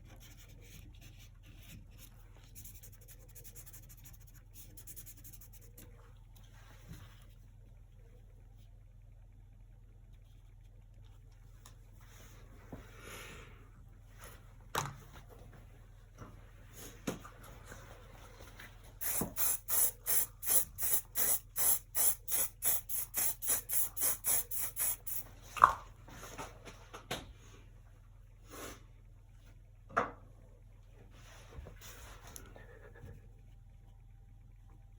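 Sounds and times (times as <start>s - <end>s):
paintbrush scrubbing: 19.0s - 25.3s.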